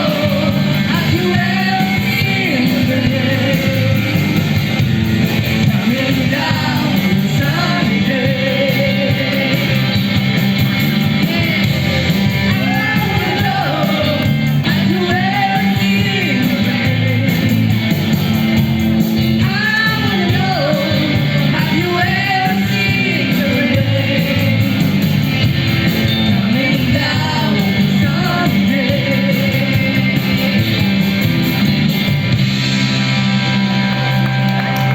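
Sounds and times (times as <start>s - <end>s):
lead singer singing: 0.0s - 4.6s, 5.4s - 10.2s, 11.1s - 17.8s, 19.4s - 25.1s, 26.1s - 31.0s
rock band playing: 0.0s - 34.9s.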